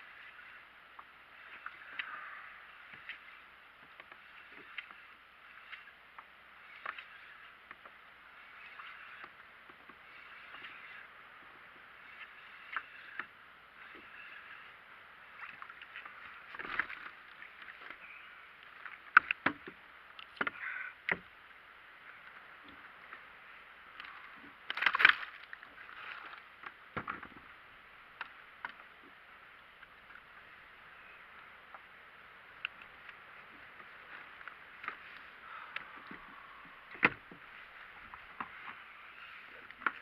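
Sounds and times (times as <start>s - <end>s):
water splashing against kayak hull: 22.0s - 30.3s.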